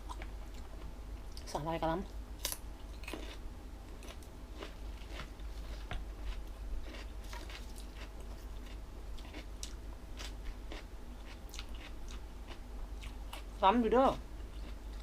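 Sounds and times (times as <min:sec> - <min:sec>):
person chewing crunchy food: 0:02.4 - 0:13.6, 0:14.4 - 0:15.0.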